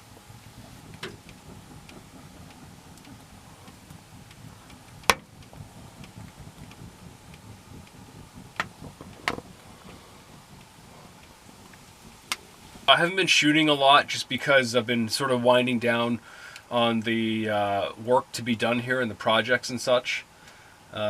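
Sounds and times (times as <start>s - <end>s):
faint ticks: 0.0s - 12.9s, 16.2s - 16.7s
sharp knocks and clicks: 0.0s - 12.9s
low steady rumble: 0.0s - 21.0s.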